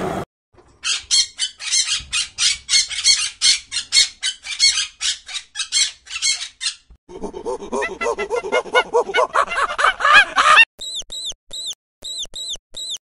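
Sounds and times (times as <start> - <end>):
macaws squawking: 0.8 - 6.9, 7.7 - 10.6.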